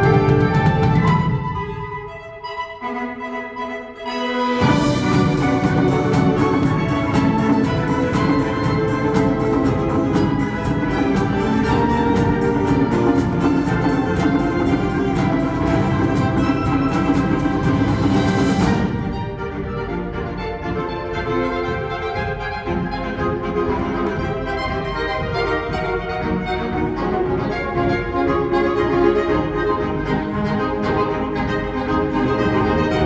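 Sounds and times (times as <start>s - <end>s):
wind ensemble playing: 0.0s - 33.0s
quick percussion strokes: 4.6s - 19.8s.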